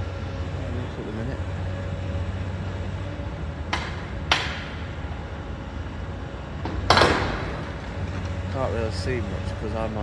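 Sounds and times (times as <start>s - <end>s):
demolition crashes: 6.8s - 9.0s.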